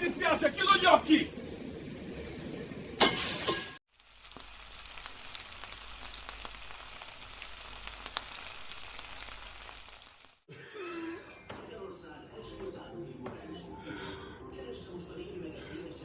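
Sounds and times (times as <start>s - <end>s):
sizzling hiss with crackles: 0.0s - 10.5s.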